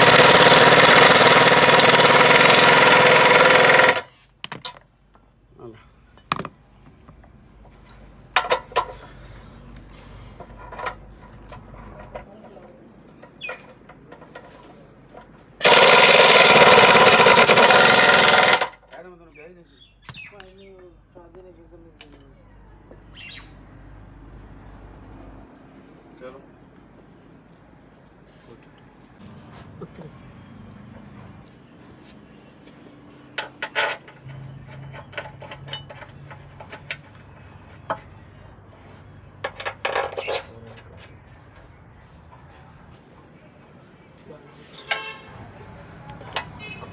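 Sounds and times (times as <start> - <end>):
loud noisy machine: 0.0 - 4.0, 15.6 - 18.7.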